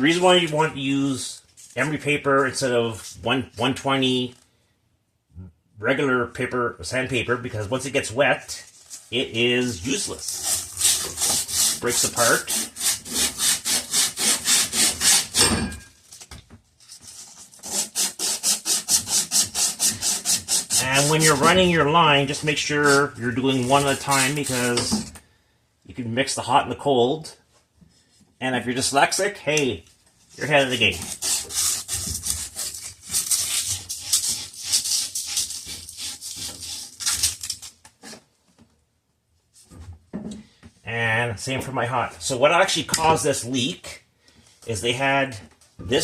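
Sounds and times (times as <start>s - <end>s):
sandpaper rubbing on copper pipe: 8.8s - 15.5s, 16.9s - 24.9s, 30.3s - 38.2s.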